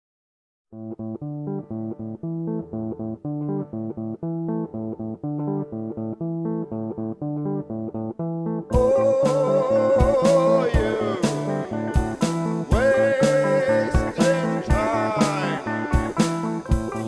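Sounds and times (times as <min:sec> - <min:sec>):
plucked guitar with bass: 0:00.8 - 0:17.0.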